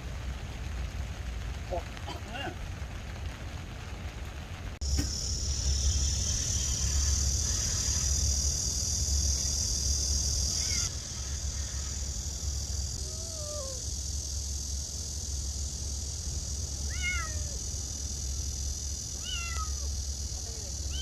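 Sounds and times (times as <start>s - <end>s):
low hum: 0.0s - 21.0s
steady hiss: 0.0s - 21.0s
cat meowing: 13.0s - 13.8s, 16.9s - 17.6s, 19.2s - 19.9s.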